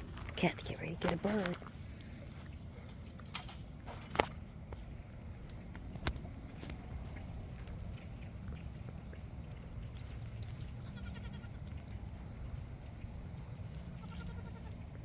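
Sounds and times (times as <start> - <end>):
steady low rumble: 0.0 - 15.0
goat bleating: 10.8 - 11.6, 13.9 - 14.8.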